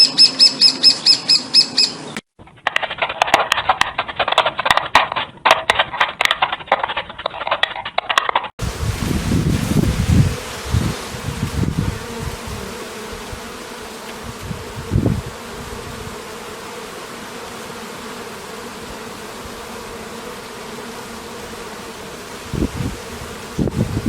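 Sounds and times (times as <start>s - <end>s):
insect buzzing: 8.6s - 24.0s.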